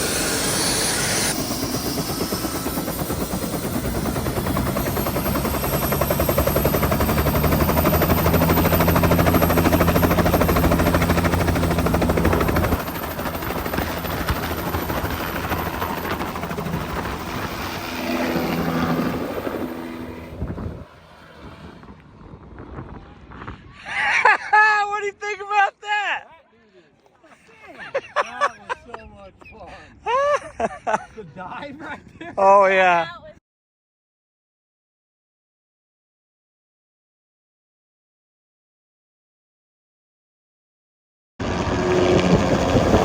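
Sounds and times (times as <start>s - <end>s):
helicopter rotor and engine: 0.0s - 22.7s, 27.8s - 29.3s, 41.4s - 43.0s.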